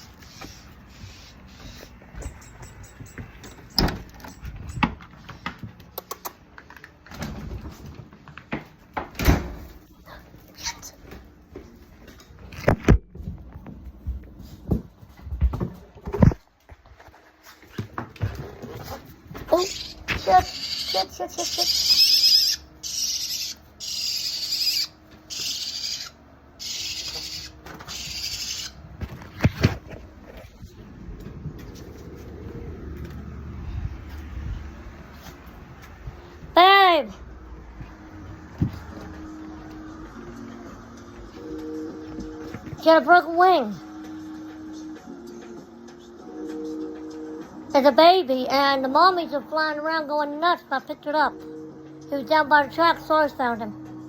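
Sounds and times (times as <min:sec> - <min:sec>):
raspy bird squawks: 0:19.5 - 0:28.8.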